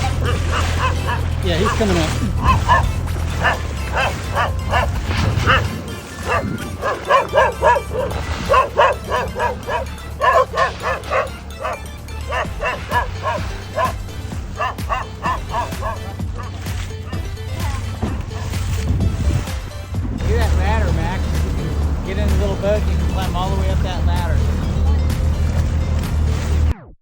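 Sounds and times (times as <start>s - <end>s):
dog barking: 0.0s - 18.8s.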